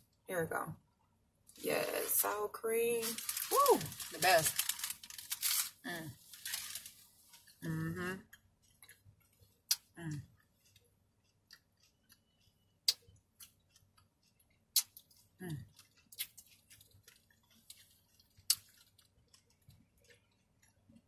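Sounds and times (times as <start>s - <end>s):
person chewing with wet mouth clicks: 9.7s - 21.0s.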